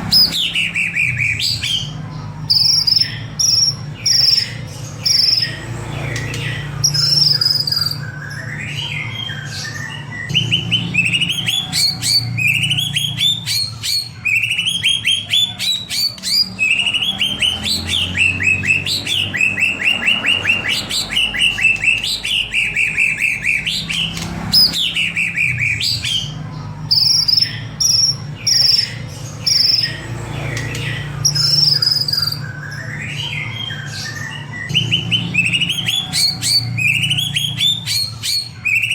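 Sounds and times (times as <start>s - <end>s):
bird singing whistled phrases: 2.5s - 5.6s, 6.8s - 30.0s, 30.6s - 38.9s.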